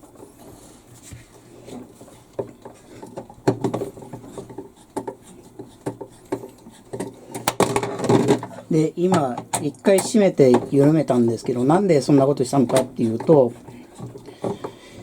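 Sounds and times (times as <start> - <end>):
tool clicks and knocks: 5.8 - 10.8.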